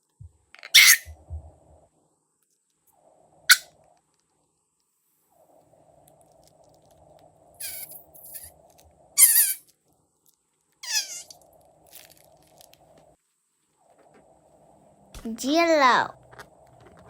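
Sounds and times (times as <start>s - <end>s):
faint steady hum: 0.0s - 17.0s
high falling squeaks: 7.6s - 8.5s, 9.2s - 9.6s, 10.8s - 11.4s.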